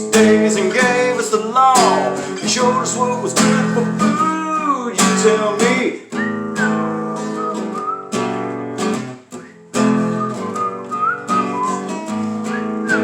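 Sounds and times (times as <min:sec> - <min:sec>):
strummed acoustic guitar: 0:00.0 - 0:13.0
whistled melody: 0:06.0 - 0:13.0.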